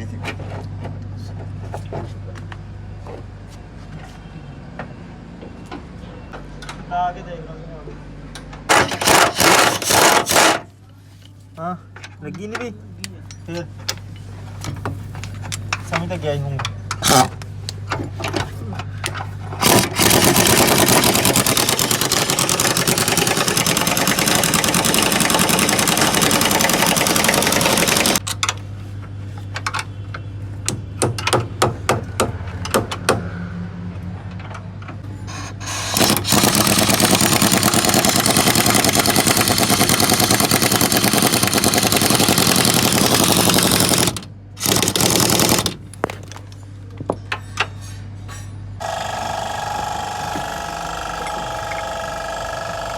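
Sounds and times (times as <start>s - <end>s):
pneumatic impact wrench hammering: 8.7s - 10.7s, 17.0s - 17.4s, 19.5s - 28.4s, 35.2s - 46.2s, 48.8s - 52.9s.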